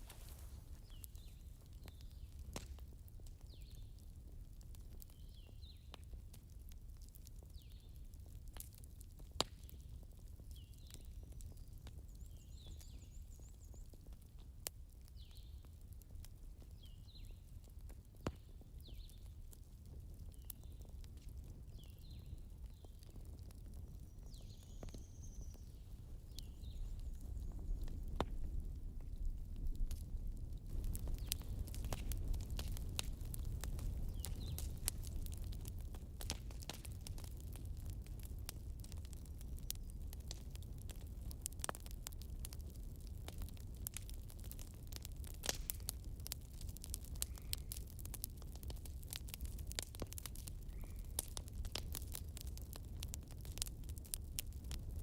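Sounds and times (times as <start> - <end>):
campfire crackling: 0.0 - 55.0
low rumble of fire: 0.0 - 55.0
wood popping: 30.7 - 54.8.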